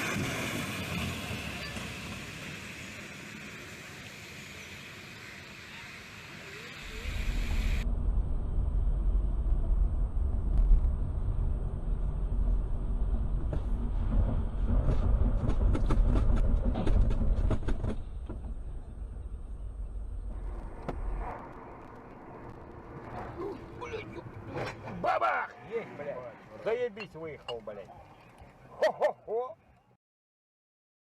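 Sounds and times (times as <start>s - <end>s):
vehicle rumbling: 0.0s - 29.0s
sharp clicks and knocks: 14.8s - 18.6s.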